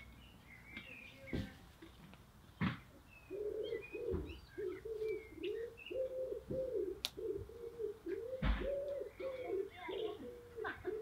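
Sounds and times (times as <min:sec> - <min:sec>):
small birds chirping: 0:00.0 - 0:11.0
bird cooing: 0:03.2 - 0:11.0.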